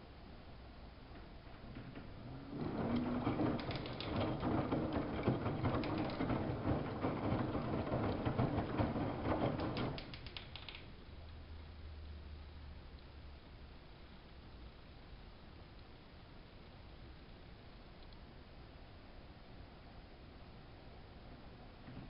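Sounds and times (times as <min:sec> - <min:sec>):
washing machine drum turning: 0:02.5 - 0:10.1
small clicks: 0:02.9 - 0:04.4, 0:09.6 - 0:11.4, 0:16.8 - 0:18.2.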